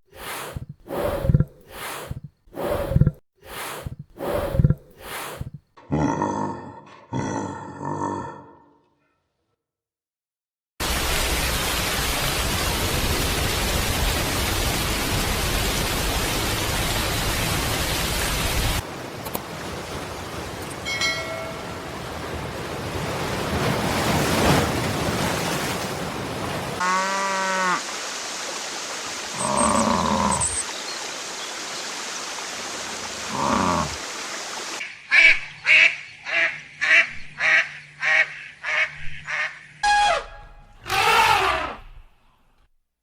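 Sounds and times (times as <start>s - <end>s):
animal calls: 37.4s - 42.0s.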